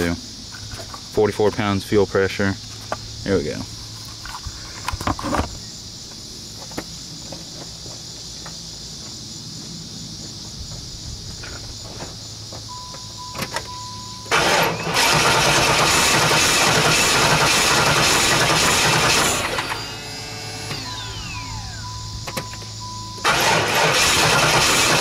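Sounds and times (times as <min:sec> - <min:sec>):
crickets chirping: 0:00.0 - 0:25.0
starter cranking engine: 0:14.3 - 0:21.9, 0:23.2 - 0:25.0.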